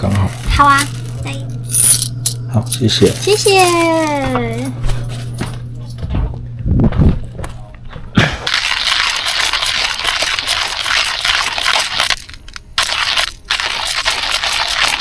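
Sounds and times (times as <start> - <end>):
coffee grinder grinding beans: 0.0 - 2.1, 2.8 - 4.3, 8.5 - 15.0.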